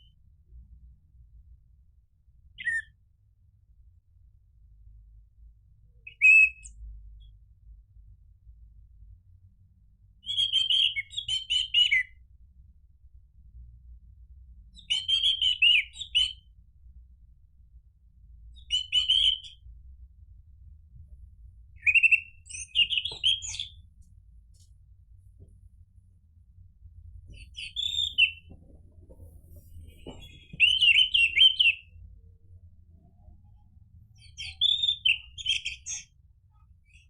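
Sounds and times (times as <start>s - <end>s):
faint low hum: 0.0s - 37.0s
thrush singing whistled notes: 27.4s - 28.5s, 30.1s - 31.9s.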